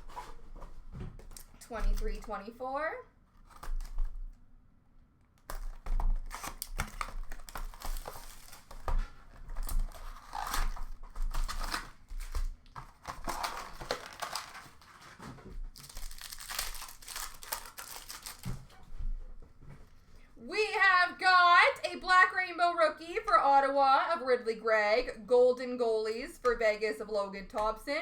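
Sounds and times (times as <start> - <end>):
foil wrappers torn and crinkled: 5.4 - 18.7.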